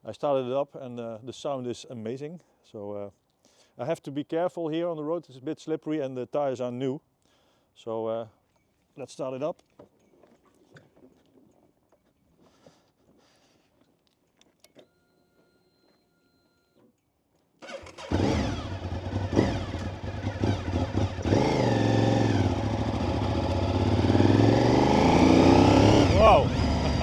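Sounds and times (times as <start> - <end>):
motorcycle engine starter cranking: 17.6 - 20.4
motorcycle engine revving: 17.6 - 27.0.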